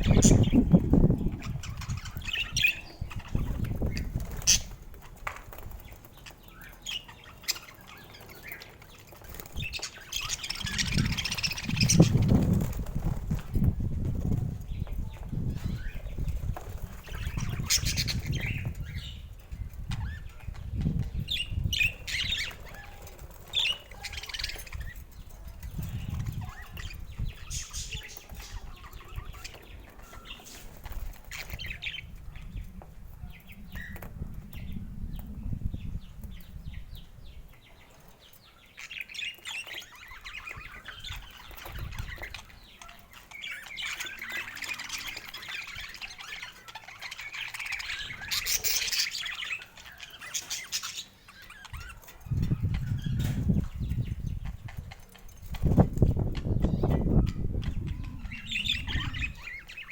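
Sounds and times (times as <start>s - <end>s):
budgerigars chirping: 15.5s - 19.2s, 38.4s - 59.9s.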